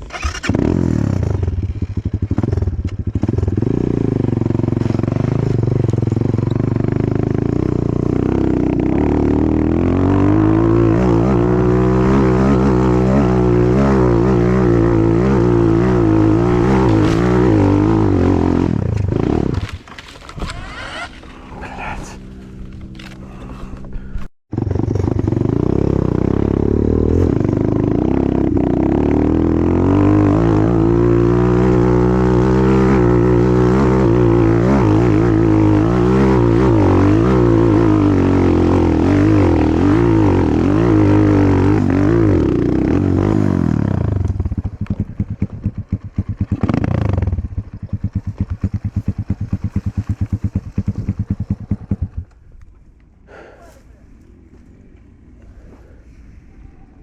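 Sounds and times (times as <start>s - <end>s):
motorcycle idling: 0.0s - 9.8s, 42.6s - 57.0s
motorcycle engine revving: 0.0s - 53.7s.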